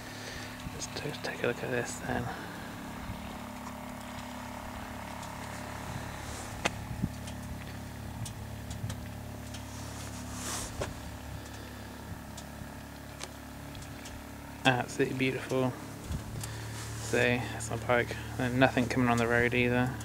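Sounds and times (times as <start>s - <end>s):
motorcycle engine idling: 0.0s - 20.0s
brief rustle: 9.5s - 11.6s.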